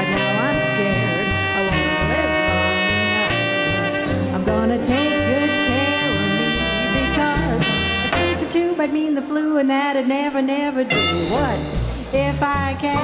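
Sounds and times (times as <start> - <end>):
walking string bass: 0.0 - 8.6
horn line: 0.0 - 9.0, 10.8 - 12.0.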